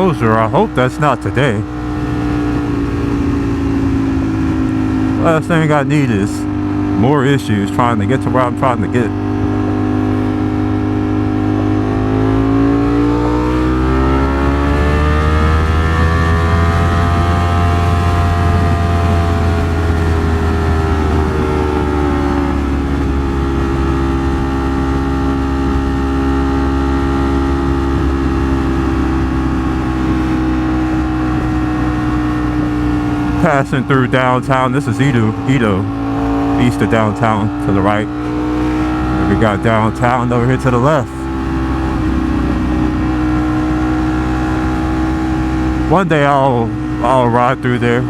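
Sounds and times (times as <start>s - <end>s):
motorcycle engine revving: 0.0s - 48.0s
wind rushing: 41.3s - 45.8s.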